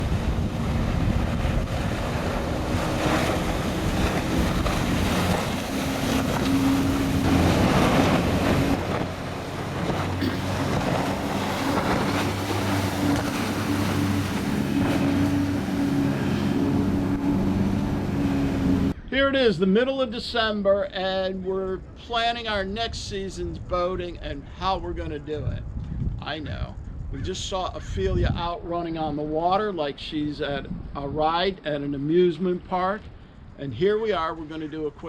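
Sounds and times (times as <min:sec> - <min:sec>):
boat engines humming: 0:00.0 - 0:19.0
rushing water: 0:00.0 - 0:19.0
wind: 0:00.0 - 0:35.0.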